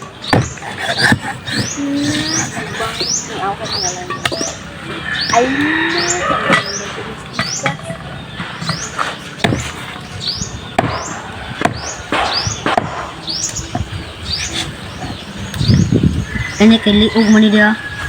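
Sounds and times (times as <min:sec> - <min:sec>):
small bird chirping: 0:00.0 - 0:18.0
sharp knocks: 0:00.3 - 0:01.7, 0:09.4 - 0:09.8, 0:10.8 - 0:13.9.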